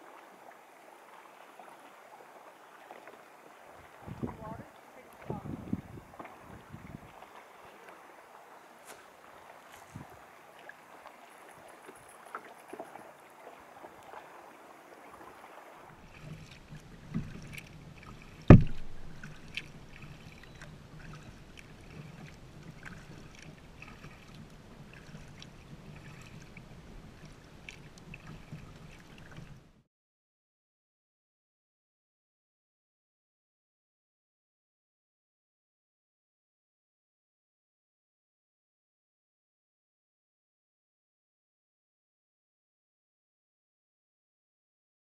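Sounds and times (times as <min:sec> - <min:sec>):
paddle strokes splashing: 0:00.0 - 0:29.8
water lapping: 0:00.0 - 0:29.8
knocks against kayak hull: 0:18.5 - 0:19.6.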